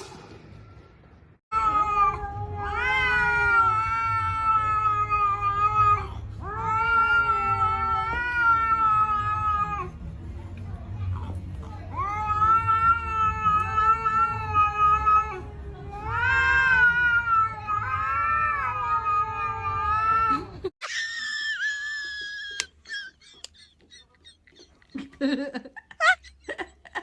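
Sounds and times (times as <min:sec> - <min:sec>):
cat yowling: 0:01.5 - 0:09.9, 0:11.9 - 0:23.2.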